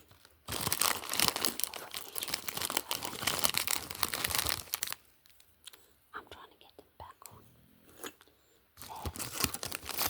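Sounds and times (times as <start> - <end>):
packaging crinkling: 0.0 - 5.8, 8.8 - 10.0.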